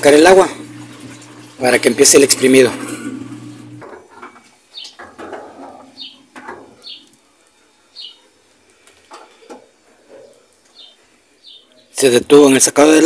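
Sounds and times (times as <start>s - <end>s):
small bird chirping: 4.7s - 5.0s, 5.9s - 7.1s, 8.0s - 8.3s, 10.2s - 11.9s.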